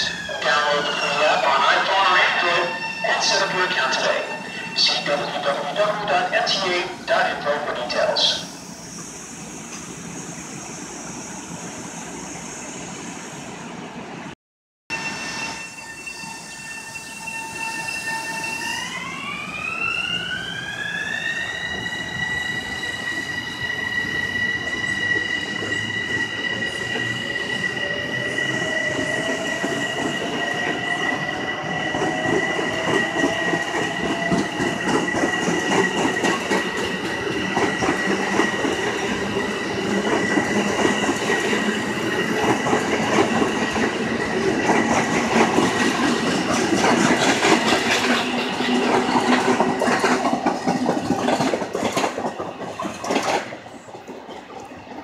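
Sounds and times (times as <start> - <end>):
electric train whine: 0.0 - 14.3, 14.9 - 55.0
train wheels clattering on rail: 29.0 - 55.0.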